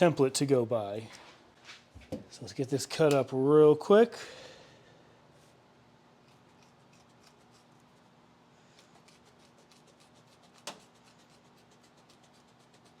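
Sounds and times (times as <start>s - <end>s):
scissors snipping: 6.2s - 7.7s.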